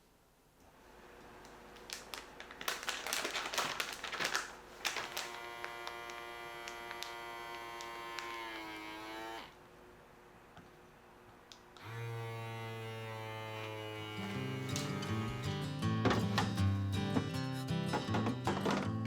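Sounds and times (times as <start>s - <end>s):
packaging rustling: 1.5s - 8.7s
small electric motor whining: 5.1s - 9.6s, 11.8s - 15.9s.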